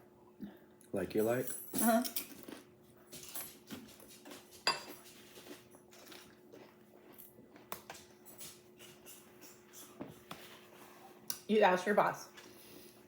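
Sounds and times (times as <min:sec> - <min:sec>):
faint steady hum: 0:00.0 - 0:13.0
cutlery clinking on a dish: 0:03.2 - 0:05.1.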